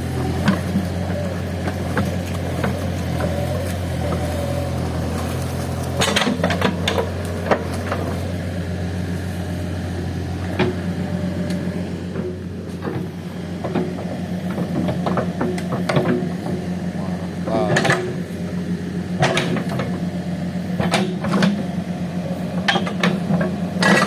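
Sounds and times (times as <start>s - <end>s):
diesel engine running: 0.0s - 24.0s
knocks and clatters: 1.6s - 8.3s.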